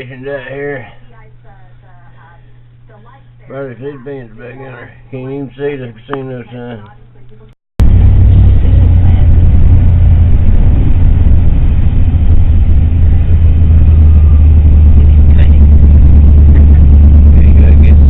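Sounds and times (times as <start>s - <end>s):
vehicle engine rumble: 0.0s - 18.0s
road noise on snow: 7.8s - 18.0s.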